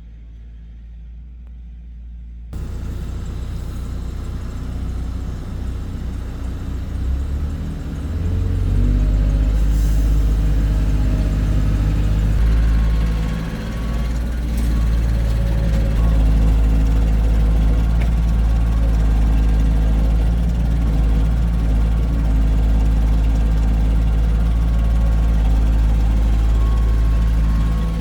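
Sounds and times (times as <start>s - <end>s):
heavy diesel engine running: 2.6s - 28.0s.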